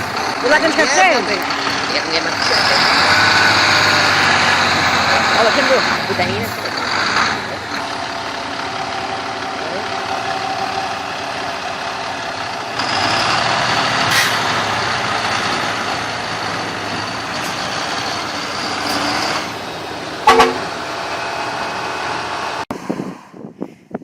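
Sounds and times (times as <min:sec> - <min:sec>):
truck engine running: 0:00.0 - 0:22.6
truck horn toot: 0:20.2 - 0:21.0
wind on microphone: 0:22.7 - 0:24.0.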